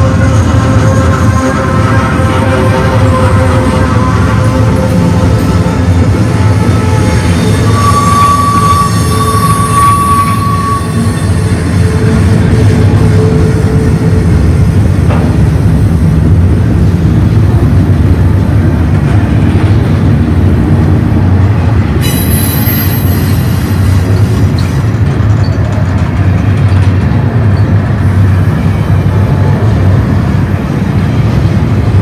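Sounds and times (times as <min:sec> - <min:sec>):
train wheels rumbling on rails: 0:00.0 - 0:32.0
faint high squeal: 0:07.2 - 0:11.4.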